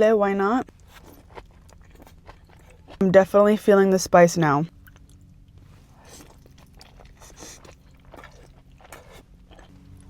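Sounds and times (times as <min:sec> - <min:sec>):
faint steady hum: 0:00.0 - 0:10.0
person chewing crunchy food: 0:00.6 - 0:03.1, 0:04.7 - 0:10.0.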